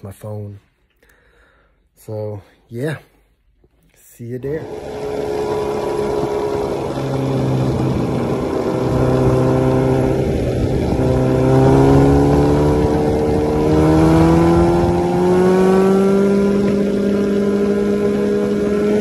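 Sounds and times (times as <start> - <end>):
motorcycle engine running: 4.6 - 19.0
wind noise on microphone: 4.7 - 17.9.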